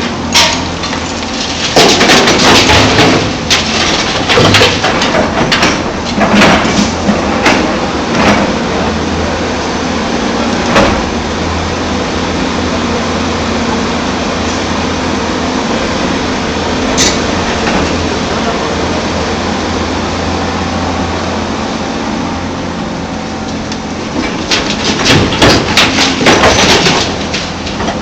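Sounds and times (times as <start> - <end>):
diesel engine running: 0.0 - 28.0
sharp knocks and clatters: 0.3 - 8.6, 24.1 - 28.0.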